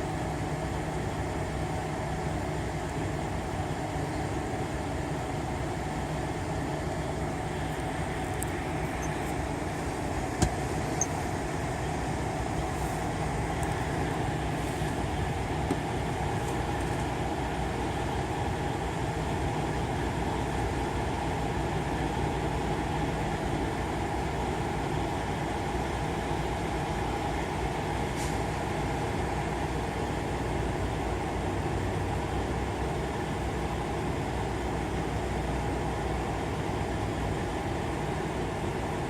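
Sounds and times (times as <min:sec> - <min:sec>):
truck engines idling: 0:00.0 - 0:39.0.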